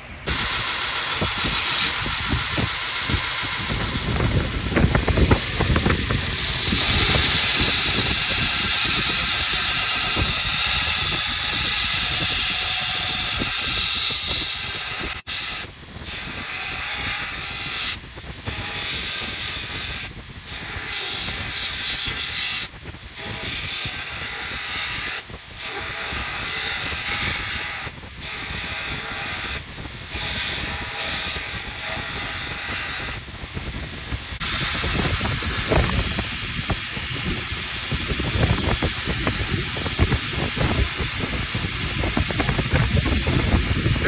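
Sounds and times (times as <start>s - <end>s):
belt grinder grinding steel blade: 0.3s - 33.2s.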